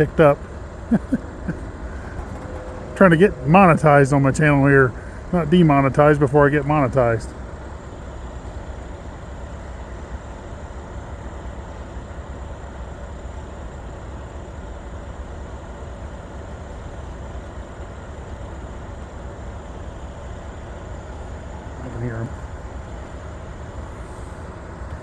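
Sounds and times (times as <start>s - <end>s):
freight train rumbling past: 0.0s - 13.7s.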